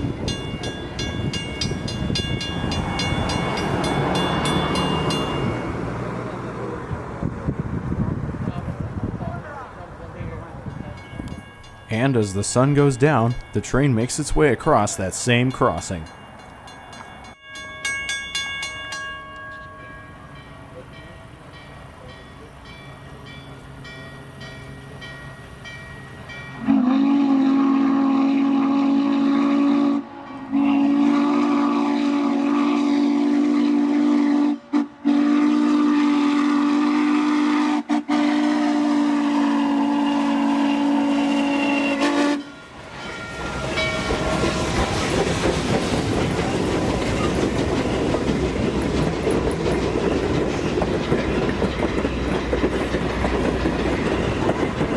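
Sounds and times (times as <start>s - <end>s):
faint crossing bell ringing: 0.0s - 6.4s, 10.5s - 26.8s, 42.4s - 44.7s
train rumbling past: 0.0s - 54.9s
steam locomotive whistle: 26.6s - 42.8s
wheels clicking over rail joints: 43.0s - 54.9s.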